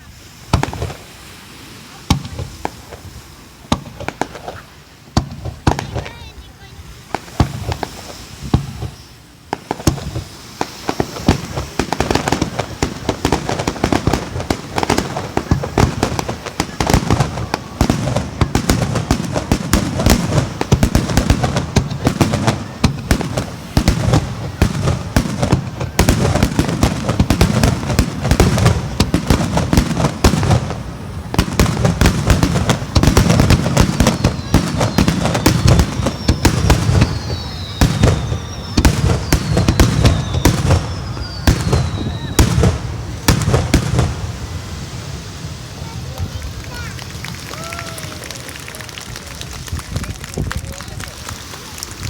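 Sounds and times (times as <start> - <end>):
fireworks bangs and crackles: 0.0 - 52.0
falling whistling tones: 30.6 - 43.8.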